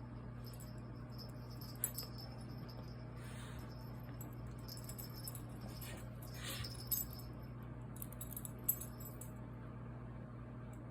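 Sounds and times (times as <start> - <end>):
steady low hum: 0.0 - 10.9
light metallic jingling: 0.4 - 9.4.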